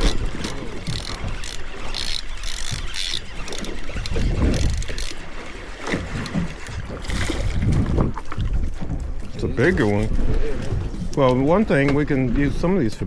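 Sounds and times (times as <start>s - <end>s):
fishing reel ratcheting clicks: 0.0s - 5.2s
wind buffeting microphone: 0.0s - 13.0s.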